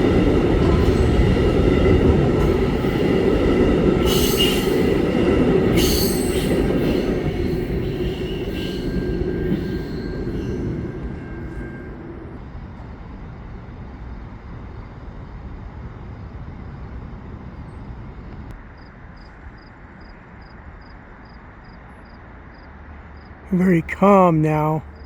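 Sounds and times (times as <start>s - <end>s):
train wheels squealing and rumbling: 0.0s - 12.4s.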